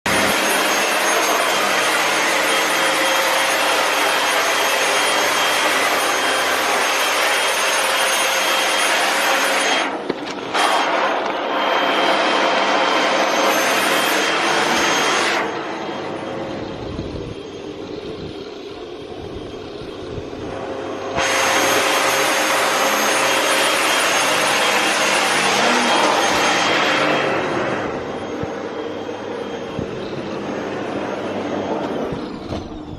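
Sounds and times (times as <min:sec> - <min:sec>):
vacuum cleaner running: 0:00.1 - 0:32.9.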